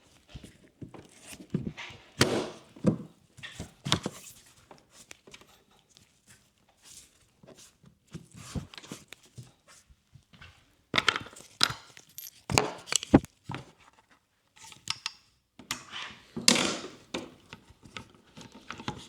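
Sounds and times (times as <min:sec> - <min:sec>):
knocks and clicks of tools: 0:11.7 - 0:13.3.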